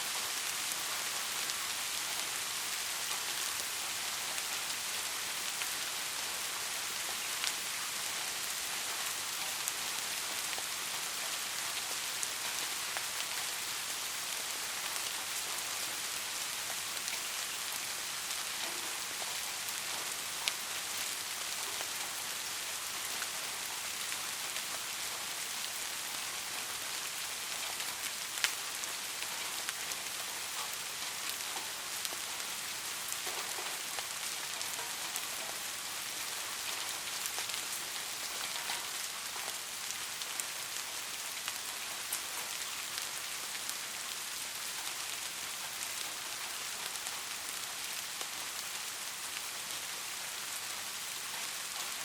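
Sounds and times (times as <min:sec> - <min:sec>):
steady rain hiss: 0:00.0 - 0:52.0.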